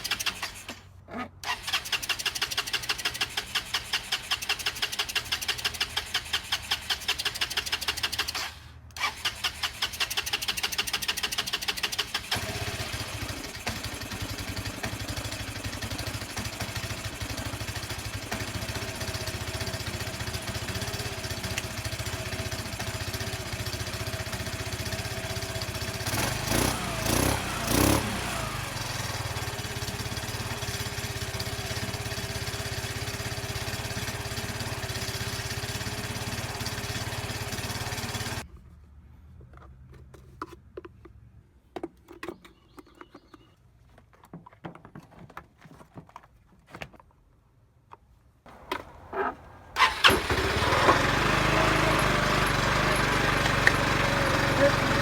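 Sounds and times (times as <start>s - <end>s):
scooter engine idling: 1.4s - 8.3s, 9.0s - 38.4s, 48.5s - 55.0s.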